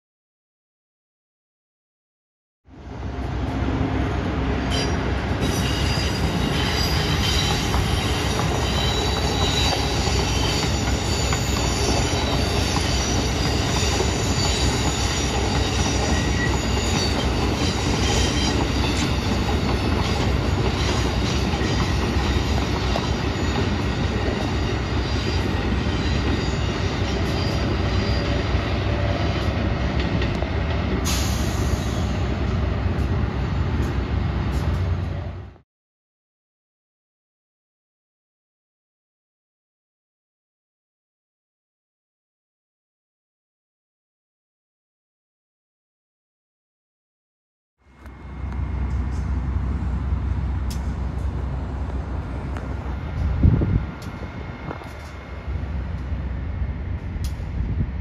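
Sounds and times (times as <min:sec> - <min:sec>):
rumble of wheels on rail: 0:02.7 - 0:35.6, 0:47.8 - 0:58.0
high-pitched wheel squeal: 0:04.7 - 0:29.5.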